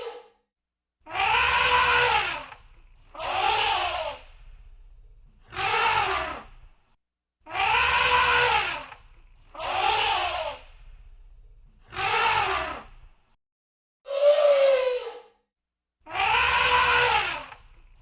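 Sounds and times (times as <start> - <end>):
elephant trumpeting: 1.1 - 4.2, 5.5 - 6.5, 7.5 - 10.6, 11.9 - 12.9, 16.1 - 17.6.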